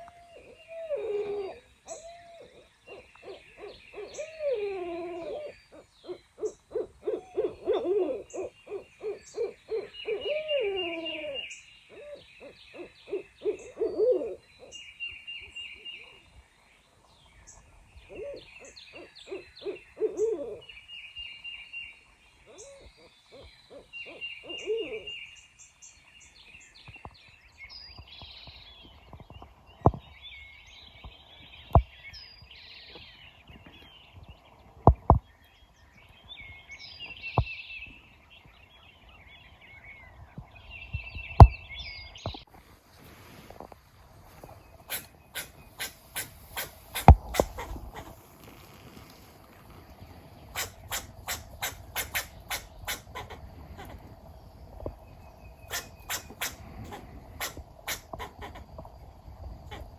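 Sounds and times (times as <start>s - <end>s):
owls hooting: 0.0s - 14.8s, 18.1s - 20.7s, 22.5s - 25.2s, 44.9s - 48.2s, 50.5s - 54.0s, 55.7s - 58.7s
songbirds singing: 0.0s - 42.6s, 43.4s - 59.9s.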